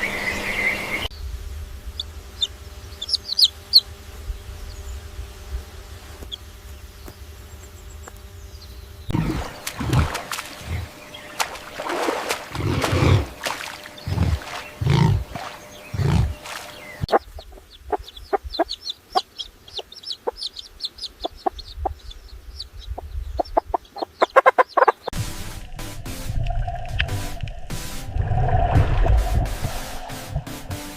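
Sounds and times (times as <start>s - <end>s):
chickens clucking: 14.0s - 25.2s.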